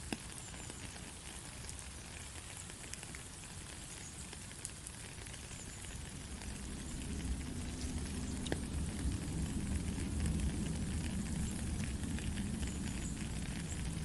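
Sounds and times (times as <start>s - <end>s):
steady rain hiss: 0.0s - 14.0s
low rumble: 5.8s - 14.0s.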